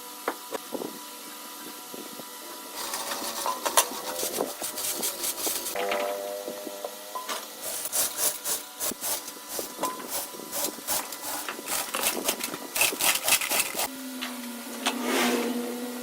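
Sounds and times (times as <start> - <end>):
faint machine hum: 0.0 - 14.8
wood being rasped: 2.8 - 5.8, 7.6 - 13.9.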